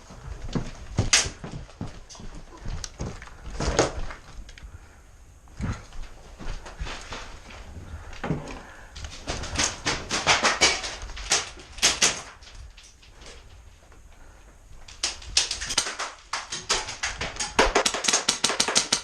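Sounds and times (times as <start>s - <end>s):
airsoft guns firing: 9.5s - 12.4s, 15.0s - 19.0s.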